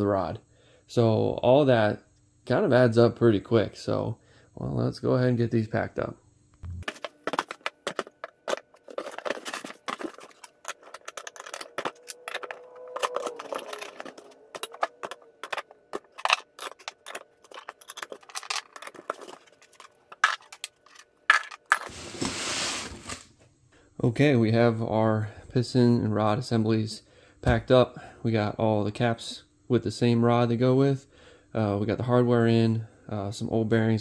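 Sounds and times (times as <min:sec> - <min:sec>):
metal parts clinking: 0:06.9 - 0:21.9.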